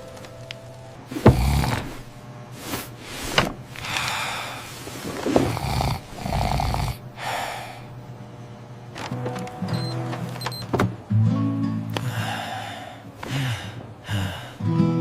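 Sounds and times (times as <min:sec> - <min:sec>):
cartoon character snoring: 0:01.1 - 0:02.1, 0:05.0 - 0:07.8.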